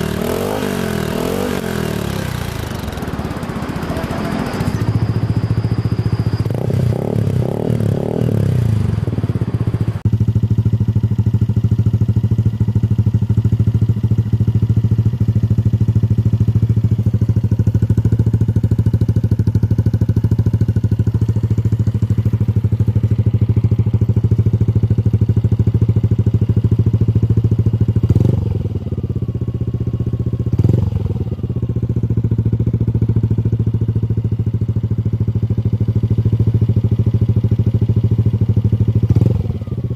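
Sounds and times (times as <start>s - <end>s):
scooter engine revving and idling: 0.0s - 39.9s.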